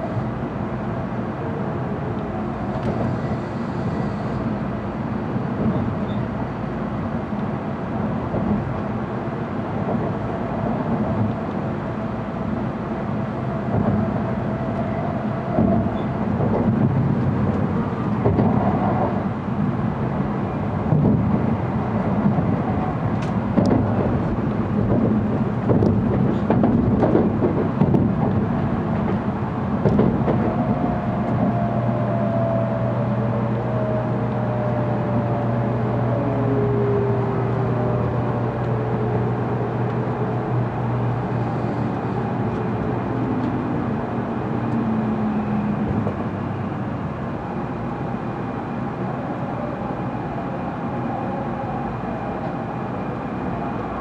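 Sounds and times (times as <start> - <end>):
train cabin rumble with faint hum: 0.0 - 54.0.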